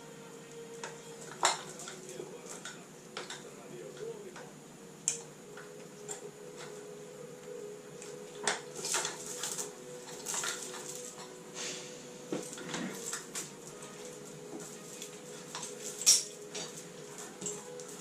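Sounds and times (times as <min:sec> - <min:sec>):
faint steady hum: 0:00.0 - 0:18.0
tools scraping: 0:08.4 - 0:18.0
metal clinks and knocks: 0:14.7 - 0:18.0.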